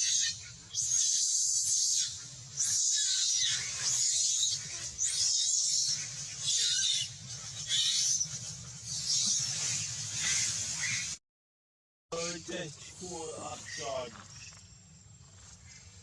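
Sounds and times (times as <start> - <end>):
young monkey screaming: 0.0 - 7.1, 7.7 - 8.2.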